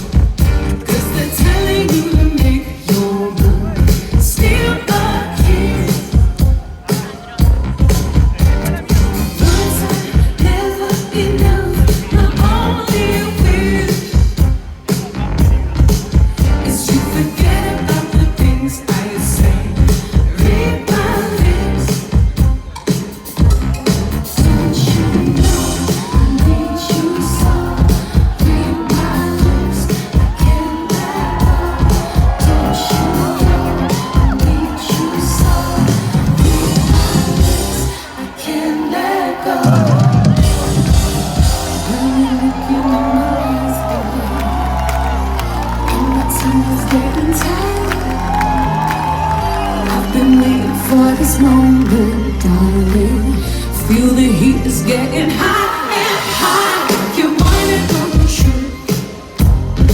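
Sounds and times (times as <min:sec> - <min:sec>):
woman singing: 0:00.0 - 0:07.4, 0:09.4 - 0:14.6, 0:16.4 - 0:23.0, 0:24.4 - 0:45.1, 0:45.8 - 0:59.9
live electronic dance music: 0:00.0 - 0:59.9
pop disco song over loudspeakers: 0:00.0 - 0:59.9
audience shouts and whoops: 0:03.8 - 0:10.1, 0:23.2 - 0:53.1.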